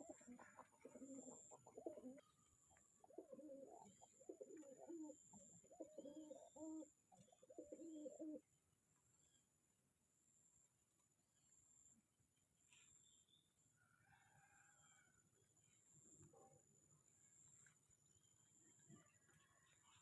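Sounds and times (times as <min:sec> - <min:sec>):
pigeons cooing: 0:00.0 - 0:08.4.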